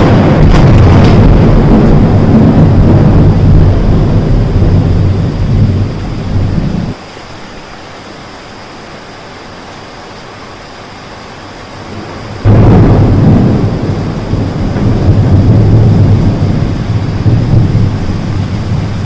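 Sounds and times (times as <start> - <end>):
deep thunder rumbling: 0.0 - 7.0, 11.8 - 19.0
heavy rain hissing: 0.0 - 19.0.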